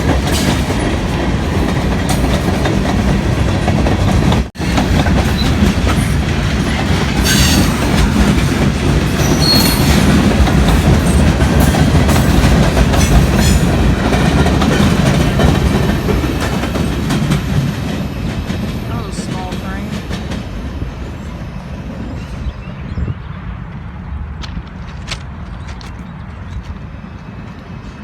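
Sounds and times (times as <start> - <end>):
wheels clacking over rail joints: 0.0 - 20.7
train wheel squeals: 5.2 - 8.4, 9.1 - 13.7.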